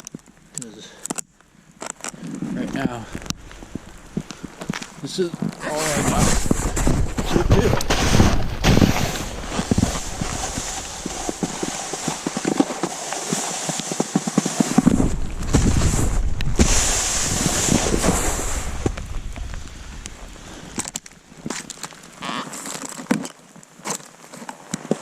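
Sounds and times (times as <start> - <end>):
snowboard scraping on slushy snow: 5.0 - 22.7
low rumble: 14.8 - 21.2.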